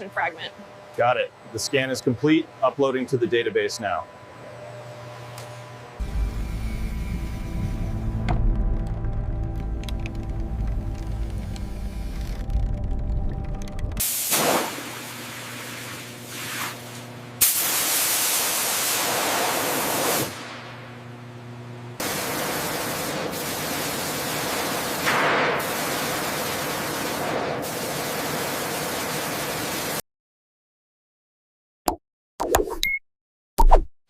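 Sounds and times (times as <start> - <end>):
loud steady hissing: 22.0 - 29.8.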